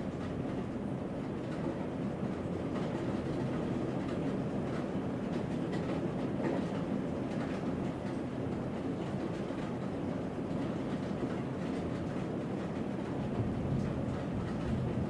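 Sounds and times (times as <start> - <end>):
thunder rumbling: 13.4 - 15.0.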